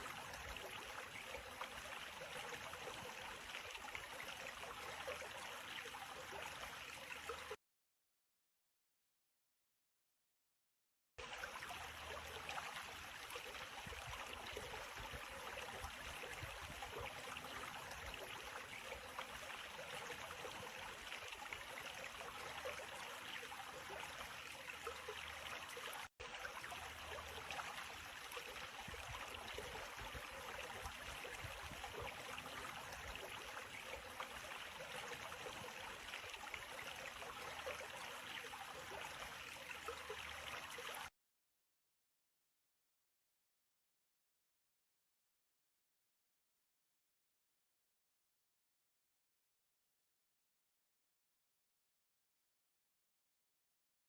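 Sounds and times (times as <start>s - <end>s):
running water: 0.0s - 7.6s, 11.2s - 41.1s.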